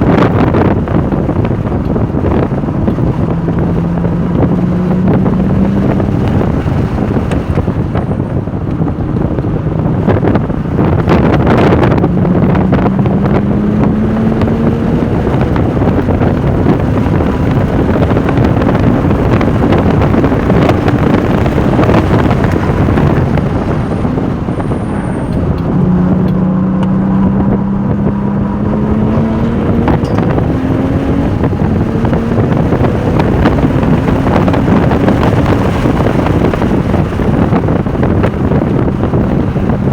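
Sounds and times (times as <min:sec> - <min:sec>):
car engine pulling hard: 0:00.0 - 0:39.9
wind and road noise: 0:00.0 - 0:39.9.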